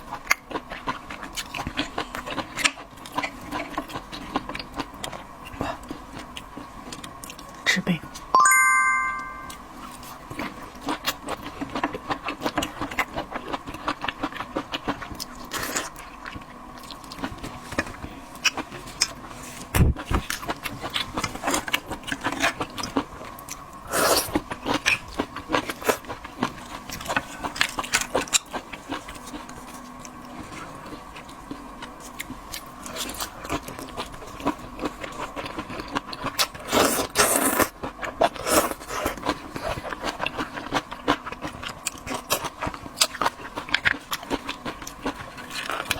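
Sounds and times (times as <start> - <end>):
chewing shellfish crunches: 0.0 - 7.6, 10.3 - 19.2, 20.0 - 45.9.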